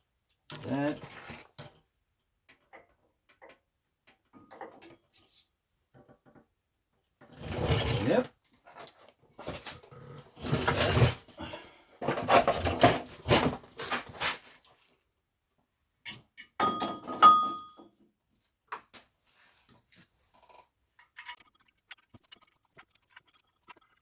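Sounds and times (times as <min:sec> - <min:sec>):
metal tools knocking and rattling: 0:16.0 - 0:17.8.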